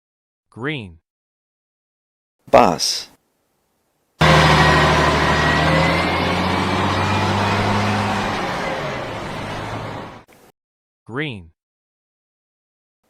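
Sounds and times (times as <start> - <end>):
bus engine running: 4.2 - 10.3.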